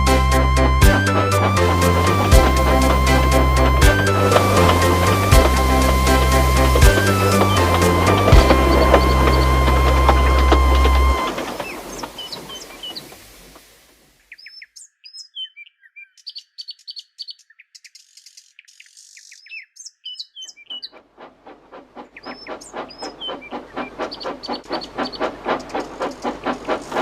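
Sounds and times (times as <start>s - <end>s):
steam train chuffing: 0.0s - 14.0s, 20.9s - 27.0s
birds chirping and trilling: 0.5s - 13.6s, 14.2s - 21.0s, 22.0s - 27.0s.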